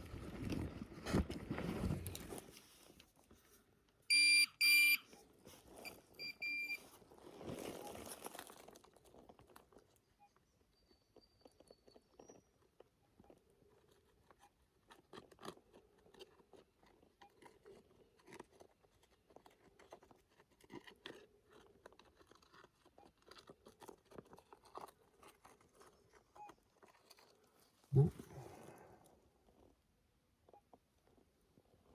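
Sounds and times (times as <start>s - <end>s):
metal detector beep: 4.1s - 5.1s, 5.8s - 6.8s.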